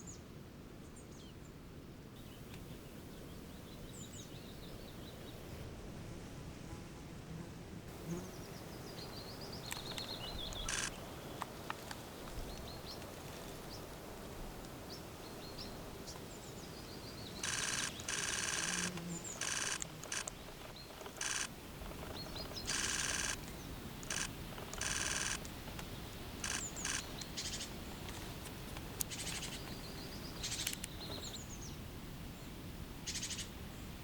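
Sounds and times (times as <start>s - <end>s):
small songbird chirping: 2.2s - 5.6s, 8.1s - 13.9s, 14.8s - 27.8s, 29.0s - 31.8s, 33.0s - 33.9s
camera shutter bursts: 9.7s - 11.0s, 17.4s - 23.4s, 24.0s - 25.5s, 26.4s - 27.2s.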